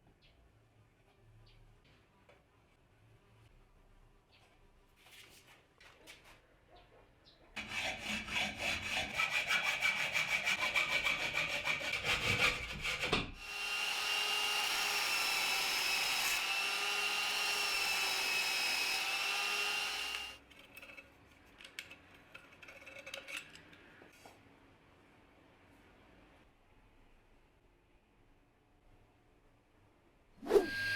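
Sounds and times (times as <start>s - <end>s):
sawing strokes on wood: 7.6s - 20.4s, 30.4s - 30.9s
power tool whining: 13.4s - 20.4s.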